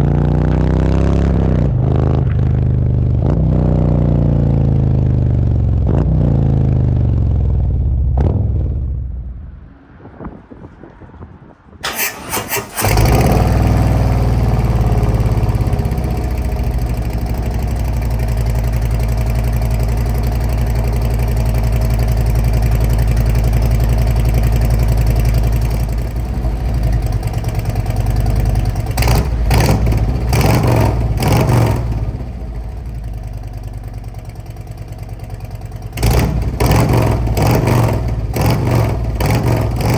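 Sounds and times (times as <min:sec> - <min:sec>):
motorcycle engine revving and idling: 0:00.0 - 0:09.3, 0:11.8 - 0:39.9
starter cranking: 0:11.8 - 0:14.6.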